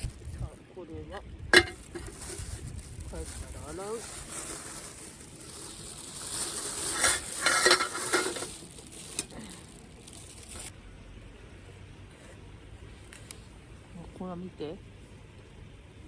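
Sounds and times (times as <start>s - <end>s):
camp cookware rustling: 0.0s - 10.7s
pot and utensils clinking: 1.6s - 2.2s, 6.9s - 9.3s.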